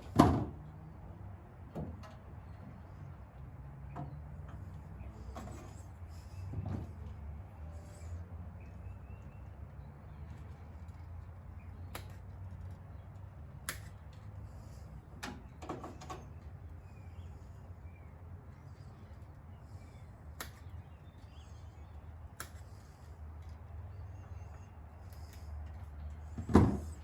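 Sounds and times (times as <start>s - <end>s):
sharp clicks and light knocks: 10.3s - 14.4s.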